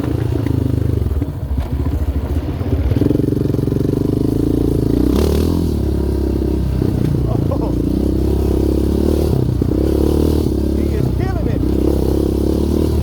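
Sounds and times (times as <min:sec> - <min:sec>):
quad engine running: 0:00.0 - 0:13.0.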